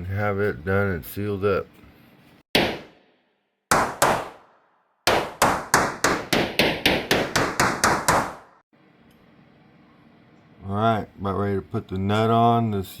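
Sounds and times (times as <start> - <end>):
hammer striking metal: 5.1 - 8.6.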